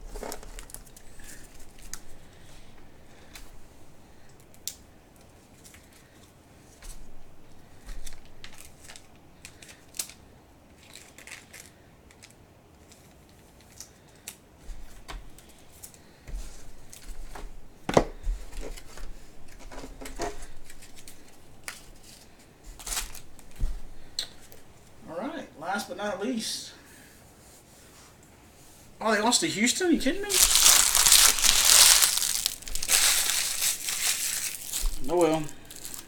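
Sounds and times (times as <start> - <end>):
cards and packaging handled: 0.0 - 4.6, 7.7 - 10.2, 10.8 - 14.4, 18.4 - 24.7, 30.0 - 36.0.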